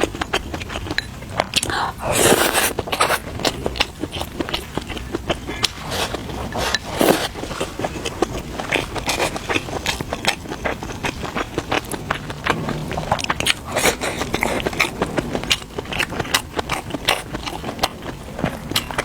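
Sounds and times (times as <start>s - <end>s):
person biting and chewing food: 1.5s - 12.5s.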